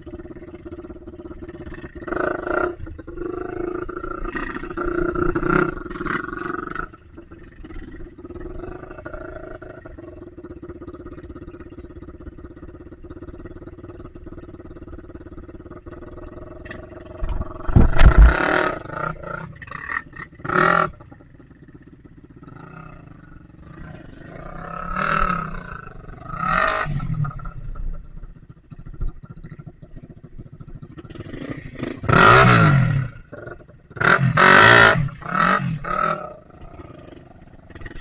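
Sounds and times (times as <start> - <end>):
dirt bike engine revving: 0.1 - 10.2, 16.0 - 21.7, 22.4 - 27.8, 30.6 - 38.0.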